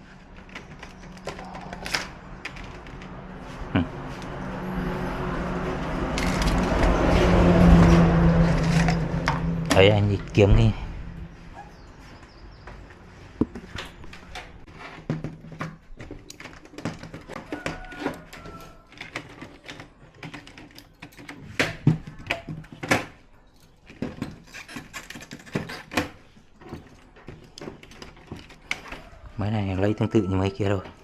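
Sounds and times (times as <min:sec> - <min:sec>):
plastic and metal parts clattering: 0:00.2 - 0:03.2, 0:06.1 - 0:07.3, 0:08.4 - 0:09.9, 0:13.4 - 0:29.1.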